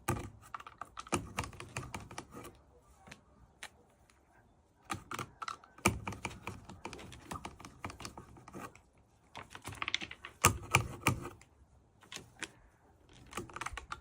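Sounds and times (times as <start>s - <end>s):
rapid clicking of small hard objects: 9.4s - 10.8s.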